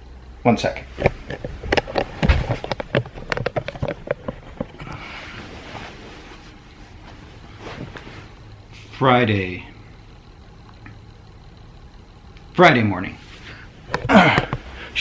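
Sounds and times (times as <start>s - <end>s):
soft rustling hiss: 0.4s - 15.0s.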